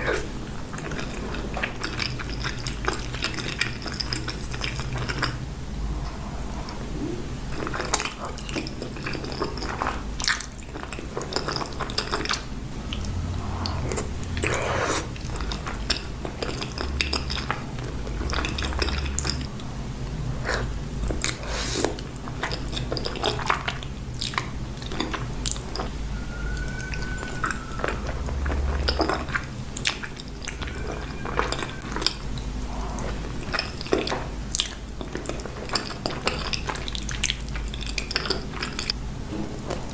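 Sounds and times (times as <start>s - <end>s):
person chewing: 3.9s - 17.4s
steady low hum: 4.3s - 9.0s, 11.8s - 22.5s.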